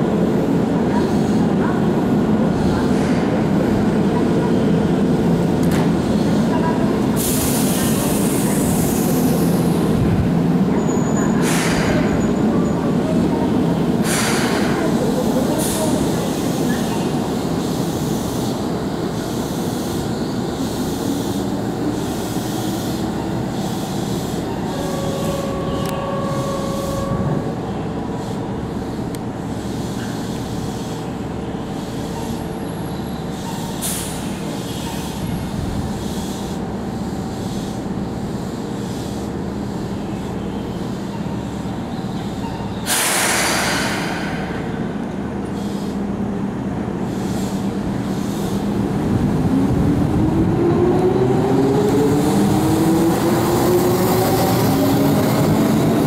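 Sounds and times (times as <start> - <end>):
electric train rail noise: 0.0 - 56.0
burst of hiss: 14.0 - 14.8, 42.8 - 46.0.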